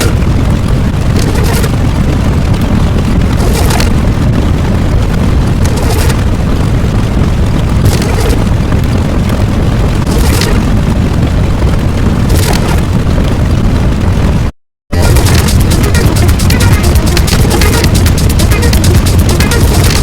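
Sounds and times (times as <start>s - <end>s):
booming explosion rumble: 0.0s - 20.0s
crackling hissing flare: 15.0s - 20.0s.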